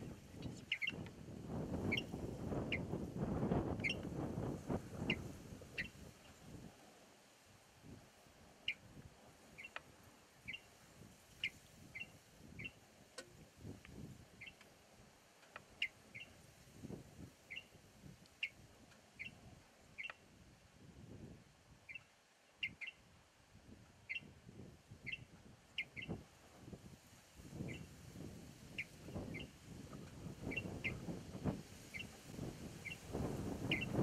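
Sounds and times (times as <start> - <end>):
high bird chirps: 0.4 - 1.1, 17.5 - 17.7, 33.6 - 34.0.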